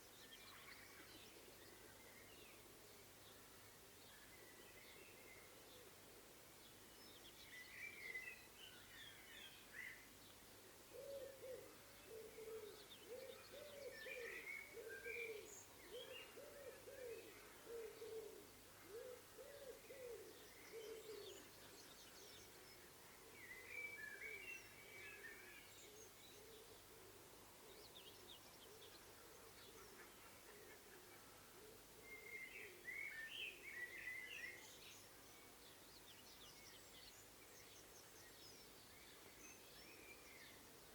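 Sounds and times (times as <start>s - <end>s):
dove cooing: 10.9s - 21.4s.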